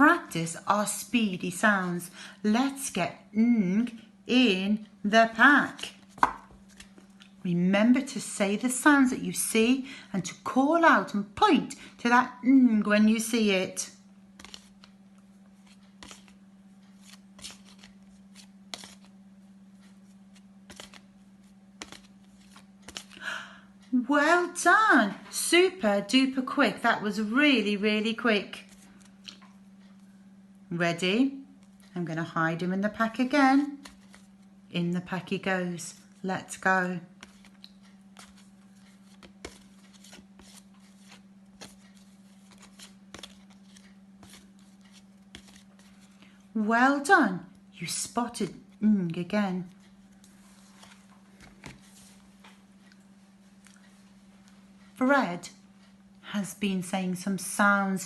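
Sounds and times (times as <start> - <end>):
faint hum: 0.0 - 58.0
flashcards flicking: 5.8 - 7.4, 14.4 - 15.0, 15.6 - 19.2, 19.8 - 21.1, 21.8 - 23.3, 33.8 - 34.4, 37.2 - 46.3
paper cards flipping and rustling: 5.8 - 7.4, 14.4 - 19.2, 19.8 - 23.2, 33.8 - 34.4, 37.2 - 46.4, 50.1 - 53.0.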